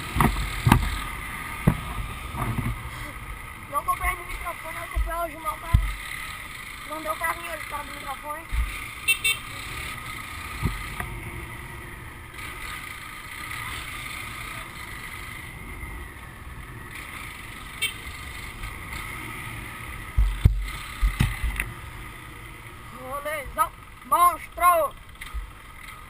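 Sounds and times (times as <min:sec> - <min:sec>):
motorcycle engine: 0:00.0 - 0:26.0
wind thumps on microphone: 0:20.2 - 0:21.6.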